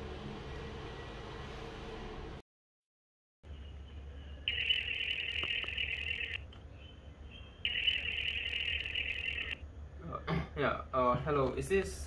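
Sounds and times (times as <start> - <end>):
phone ringing tone: 4.5 - 6.4, 7.7 - 9.6.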